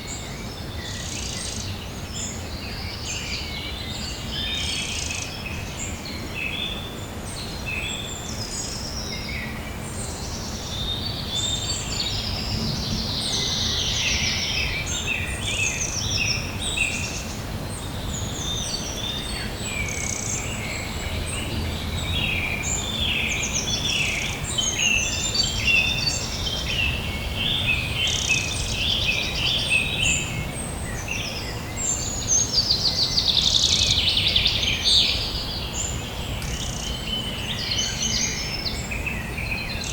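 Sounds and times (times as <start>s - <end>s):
small birds chirping: 0.0s - 39.9s
low outdoor rumble: 19.4s - 25.5s.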